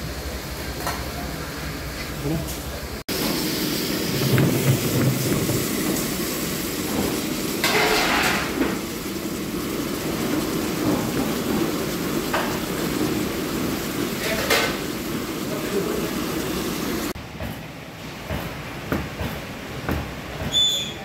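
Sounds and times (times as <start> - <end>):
fish sizzling in a pan: 3.1 - 17.1.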